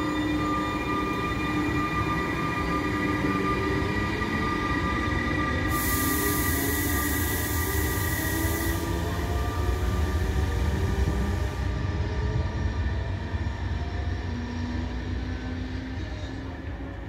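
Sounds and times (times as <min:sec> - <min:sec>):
wheel hiss: 0:05.7 - 0:09.0.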